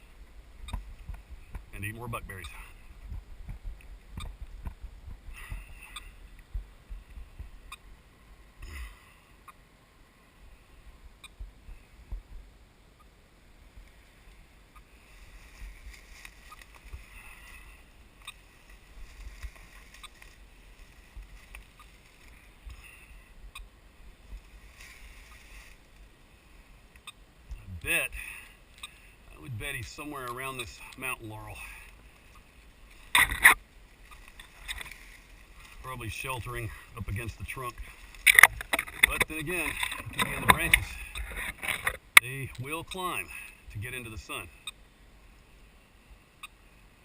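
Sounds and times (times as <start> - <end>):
wind rumble on microphone: 0.0 - 8.0
camera handling noise: 38.2 - 42.0.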